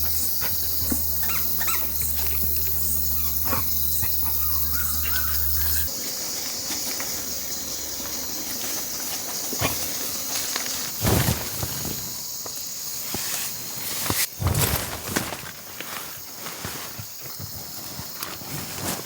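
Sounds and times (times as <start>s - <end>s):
high-pitched insect chirring: 0.0s - 10.8s.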